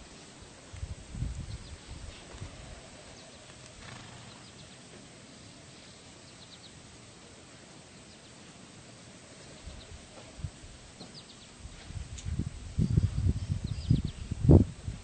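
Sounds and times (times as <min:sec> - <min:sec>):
faint outdoor ambience: 0:00.0 - 0:15.0
faint high bird chirps: 0:05.8 - 0:06.8, 0:12.8 - 0:14.4.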